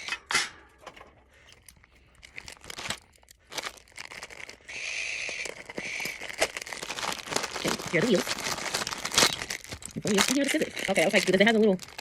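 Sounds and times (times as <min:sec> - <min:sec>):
packaging crinkling and rustling: 0:01.3 - 0:12.0
steady high-pitched call: 0:04.6 - 0:06.4.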